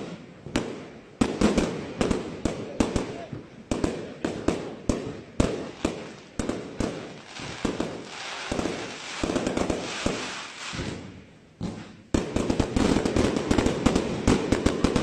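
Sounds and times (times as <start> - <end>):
hiss of small firework bursts: 0.0 - 15.0
firework shells bursting: 5.5 - 15.0.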